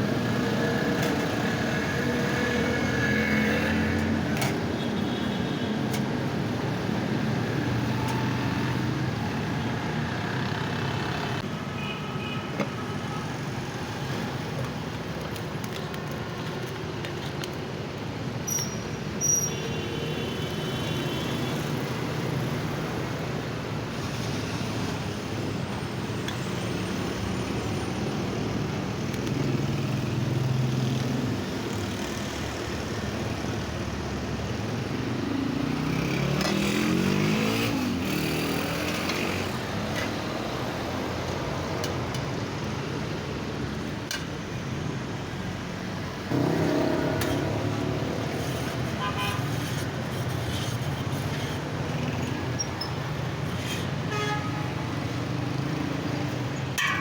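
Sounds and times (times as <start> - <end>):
street traffic noise: 0.0 - 57.0
vehicle engine accelerating: 46.3 - 48.5.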